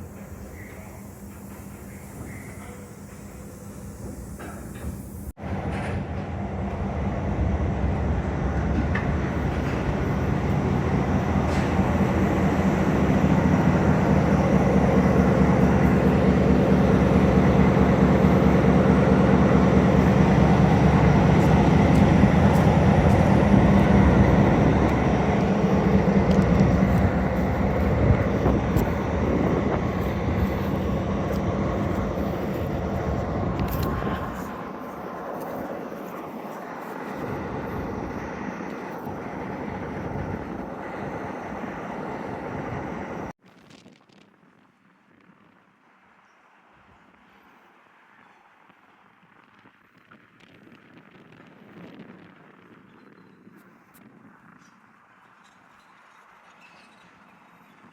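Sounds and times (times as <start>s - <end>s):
train rumbling on rails: 0.0s - 43.4s.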